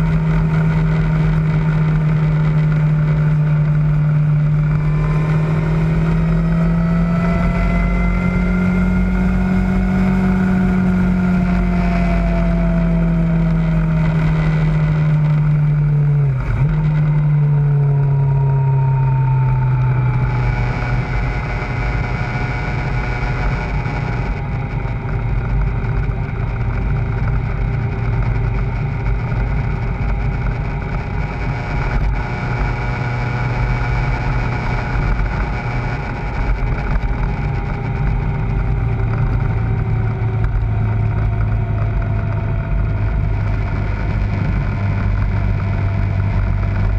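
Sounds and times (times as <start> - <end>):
motorcycle engine cruising: 0.0 - 46.9
wind rush: 17.8 - 46.9.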